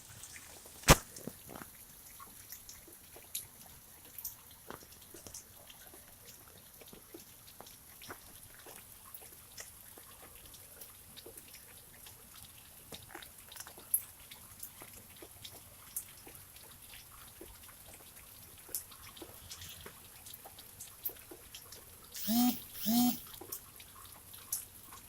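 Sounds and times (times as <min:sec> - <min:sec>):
faint steady rain hiss: 0:00.0 - 0:22.2
raindrops ticking on surfaces: 0:00.2 - 0:19.3.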